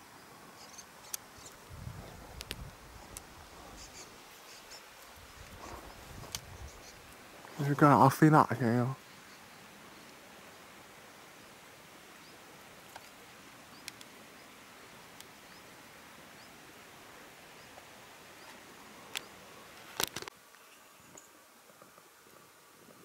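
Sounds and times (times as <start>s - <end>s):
faint outdoor hiss: 0.0s - 23.0s
birds chirping: 0.4s - 10.2s, 11.1s - 16.6s, 17.4s - 19.8s.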